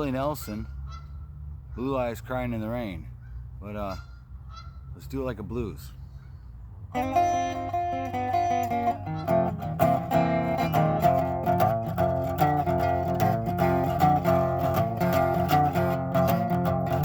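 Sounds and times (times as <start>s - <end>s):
blues guitar: 6.9s - 17.0s.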